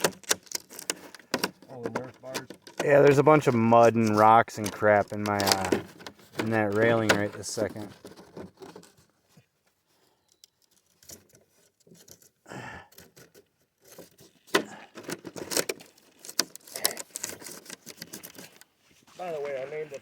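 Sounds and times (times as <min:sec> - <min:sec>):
small rocks clicking and scraping: 0:00.0 - 0:09.1, 0:10.2 - 0:20.0.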